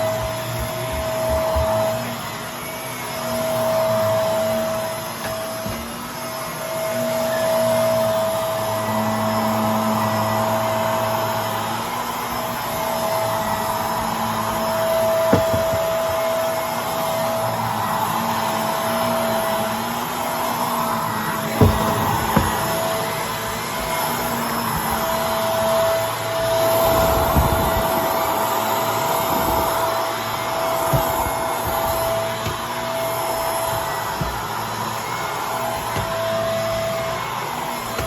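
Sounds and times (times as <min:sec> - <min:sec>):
vacuum cleaner running: 0:00.0 - 0:38.0.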